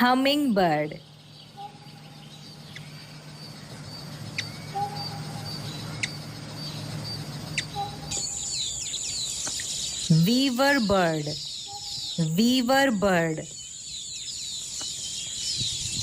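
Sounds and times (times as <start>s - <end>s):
hummingbird wings humming: 0.0s - 16.0s.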